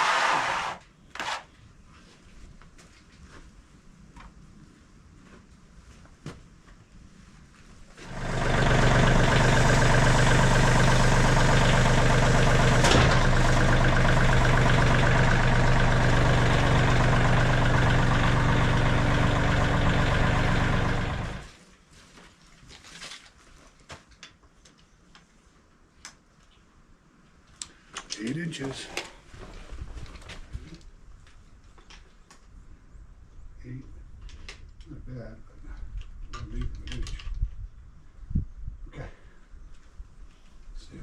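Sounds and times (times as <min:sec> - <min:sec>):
sawmill engine running: 0:08.0 - 0:21.5.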